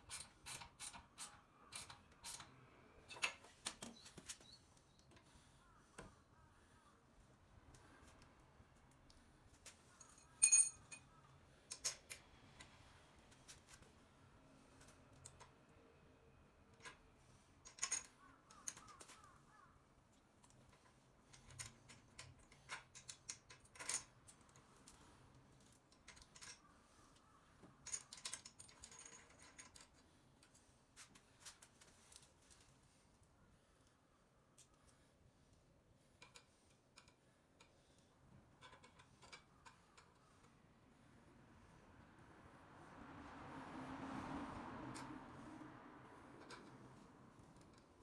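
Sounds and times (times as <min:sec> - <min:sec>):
metal tools clinking: 0:10.0 - 0:11.1, 0:17.6 - 0:18.8.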